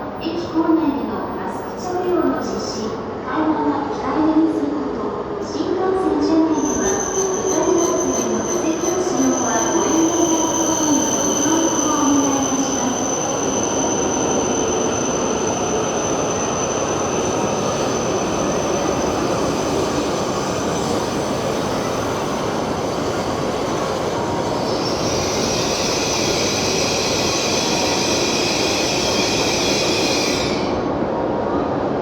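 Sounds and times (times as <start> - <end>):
train running past platform: 0.0 - 32.0
high-pitched wheel squeal: 6.5 - 18.1.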